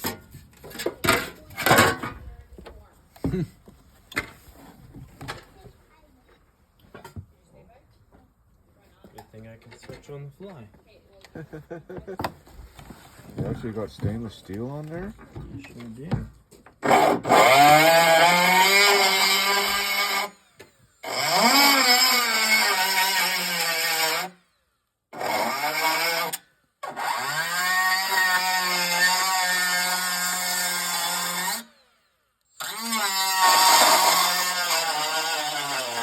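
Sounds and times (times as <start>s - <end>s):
electric grinder grinding metal: 16.8s - 24.4s, 25.2s - 36.0s.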